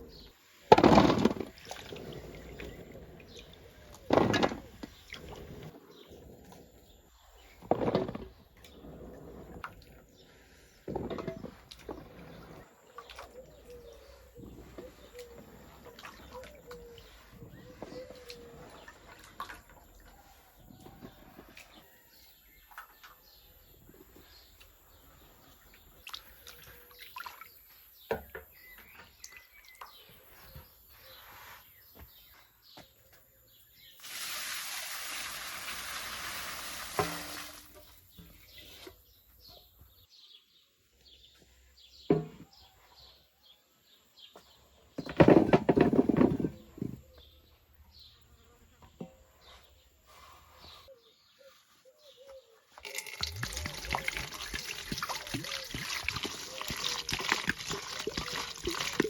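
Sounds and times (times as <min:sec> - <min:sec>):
birds chirping: 0:00.0 - 0:21.0, 0:37.6 - 0:59.0
water pouring and splashing: 0:00.7 - 0:05.8, 0:34.0 - 0:38.0, 0:52.8 - 0:59.0.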